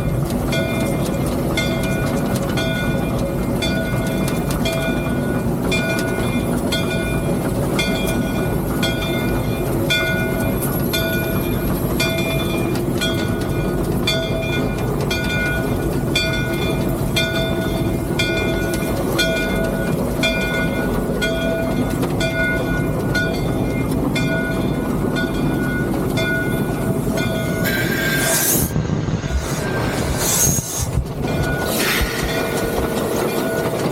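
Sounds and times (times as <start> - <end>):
pulsing metallic ringing: 0.0 - 33.9
steam locomotive rumbling: 0.0 - 33.9.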